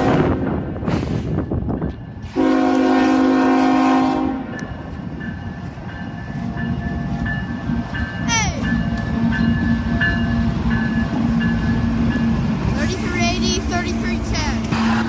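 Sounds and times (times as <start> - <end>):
passing train rumble: 0.0 - 15.0
locomotive air horn: 2.2 - 4.6.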